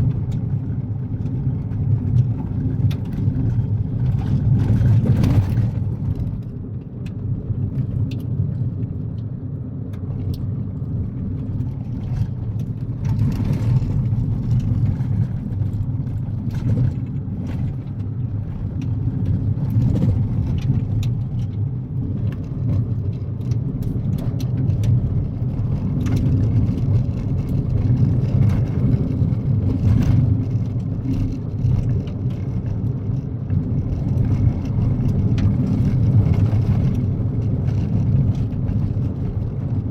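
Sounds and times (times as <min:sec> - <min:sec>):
car driving on gravel: 0:00.0 - 0:39.9.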